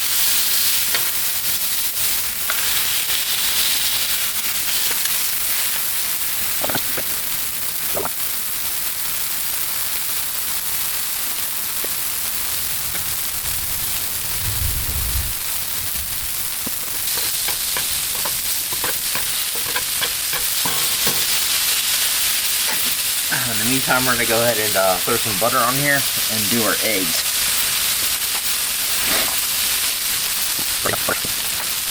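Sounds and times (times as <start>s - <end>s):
sausage sizzling on griddle: 0.0s - 31.9s.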